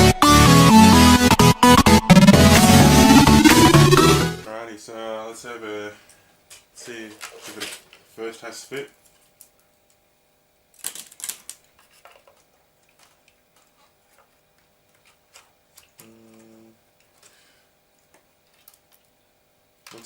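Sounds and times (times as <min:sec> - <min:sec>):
steady hum: 0:00.0 - 0:06.0
plastic parts clicking and knocking: 0:10.8 - 0:14.3.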